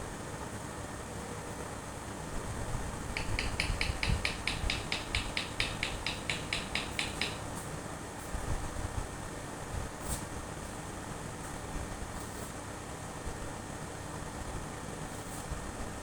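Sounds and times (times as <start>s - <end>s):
parrot chirping rapidly: 3.2s - 7.5s.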